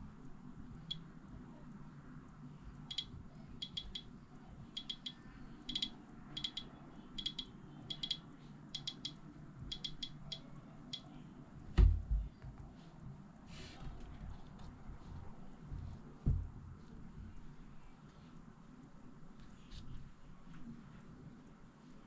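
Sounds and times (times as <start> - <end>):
heavy thump: 11.8 - 12.3.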